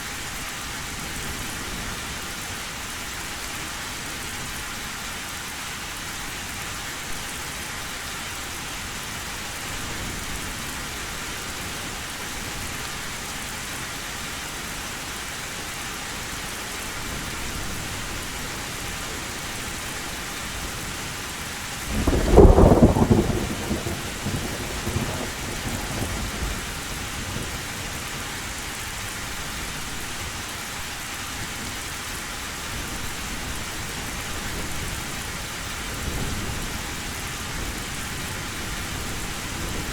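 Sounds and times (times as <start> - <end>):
heavy rain on a tin roof: 0.0 - 39.9
thunderclap rumbling: 21.9 - 26.8.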